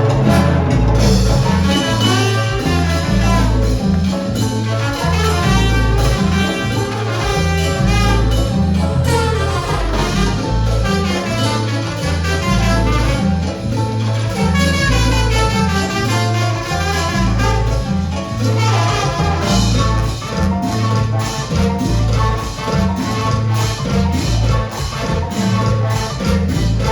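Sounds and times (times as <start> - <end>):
bass line: 0.0 - 26.9
brass: 0.0 - 26.9
salsa band playing: 0.0 - 26.9.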